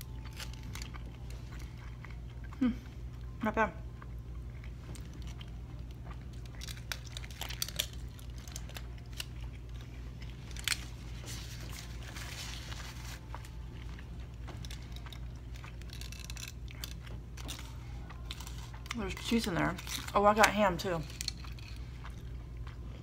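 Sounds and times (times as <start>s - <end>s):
person chewing food: 0.0s - 20.2s, 20.9s - 23.0s
steady low hum: 0.0s - 23.0s
foil wrapper crinkling: 6.4s - 21.8s.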